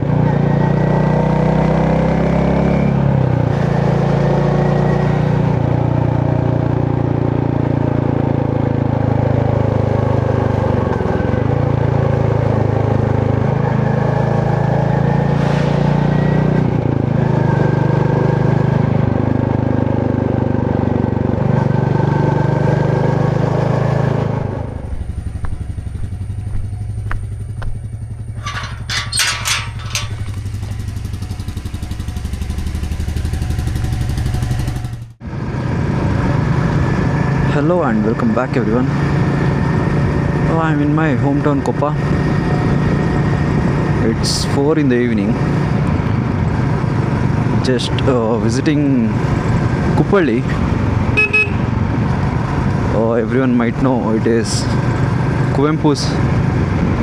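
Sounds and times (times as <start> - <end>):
motorcycle engine running: 22.3 - 36.5.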